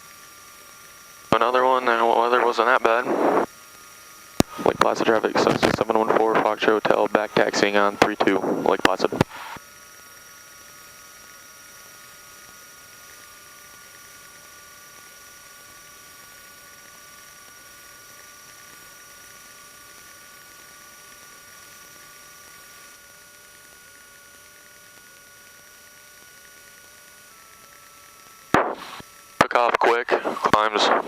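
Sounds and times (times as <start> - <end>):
muffled aircraft engine hum: 4.0 - 9.6.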